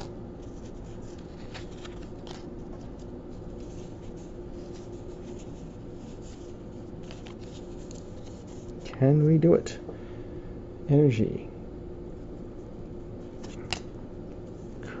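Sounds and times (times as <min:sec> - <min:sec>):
trading cards sliding together: 0:00.0 - 0:08.8
steady low hum: 0:00.0 - 0:15.0.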